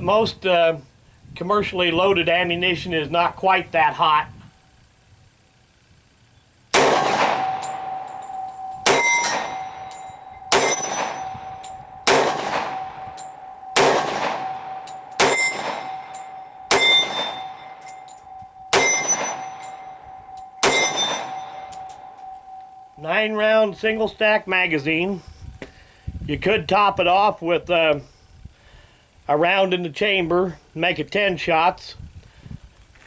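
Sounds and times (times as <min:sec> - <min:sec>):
steady ringing tone: 0:06.4 - 0:26.1
pistol shots with echo: 0:06.7 - 0:22.6.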